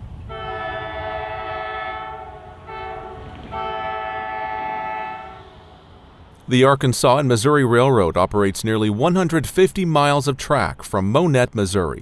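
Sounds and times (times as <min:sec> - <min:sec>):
train rumbling past: 0:00.0 - 0:09.6
locomotive air horn blasts: 0:00.2 - 0:06.0.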